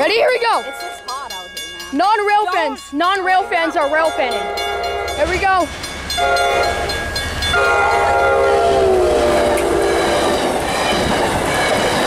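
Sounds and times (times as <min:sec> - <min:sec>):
locomotive horn blast: 0:03.2 - 0:05.3, 0:06.2 - 0:11.9.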